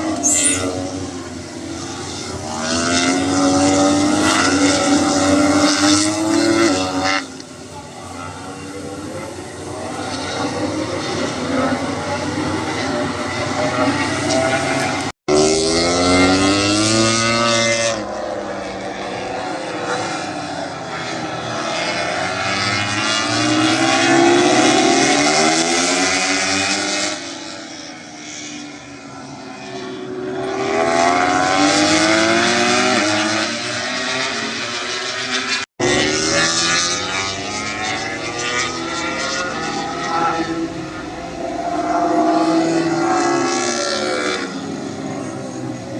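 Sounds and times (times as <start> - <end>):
racing motorcycles passing at speed: 0.0 - 45.9.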